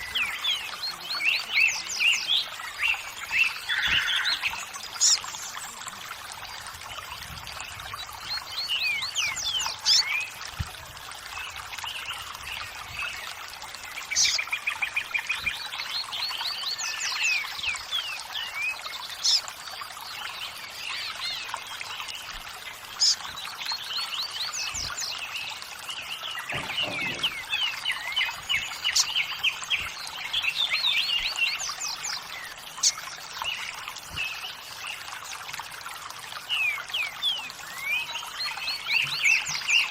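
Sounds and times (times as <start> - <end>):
small birds chirping and trilling: 0.0 - 39.9
water trickling: 0.0 - 39.9.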